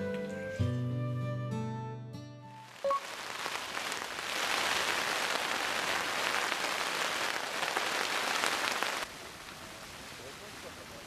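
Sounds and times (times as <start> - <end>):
heavy rain falling: 2.6 - 11.0.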